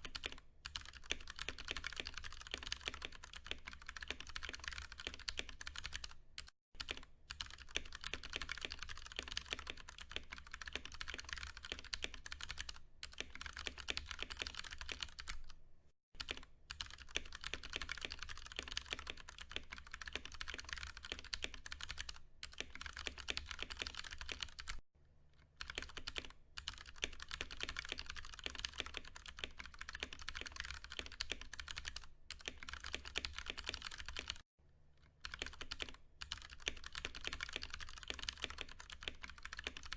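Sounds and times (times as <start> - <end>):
mechanical keyboard typing: 0.0 - 15.6, 16.2 - 24.8, 25.6 - 34.4, 35.2 - 39.9.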